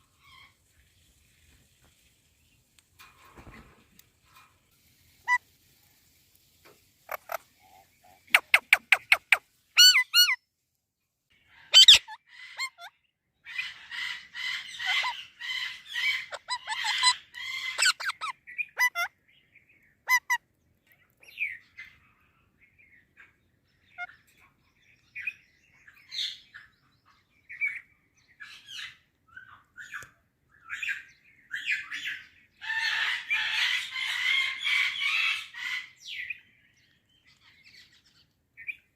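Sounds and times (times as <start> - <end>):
parakeet squawking and chattering: 7.0 - 7.4, 8.3 - 10.4, 11.7 - 12.9, 13.5 - 19.1, 20.1 - 20.4.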